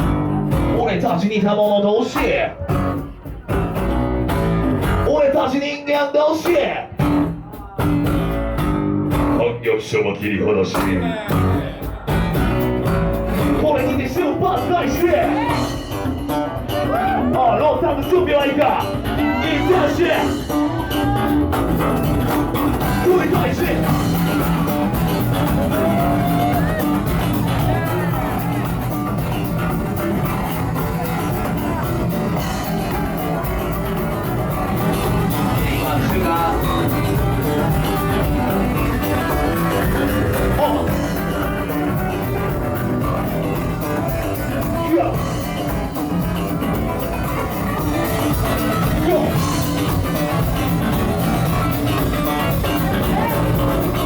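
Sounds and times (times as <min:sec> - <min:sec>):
guitar: 0:00.0 - 0:54.0
live band music: 0:00.0 - 0:54.0.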